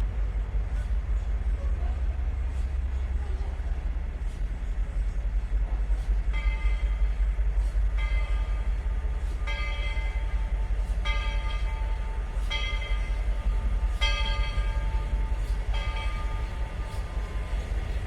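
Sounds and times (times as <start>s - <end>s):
steady low rumble: 0.0s - 18.0s
locomotive bell ringing: 4.9s - 18.0s.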